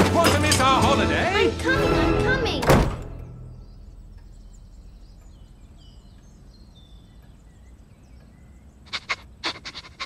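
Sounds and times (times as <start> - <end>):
songbird chirps: 2.0 - 10.0.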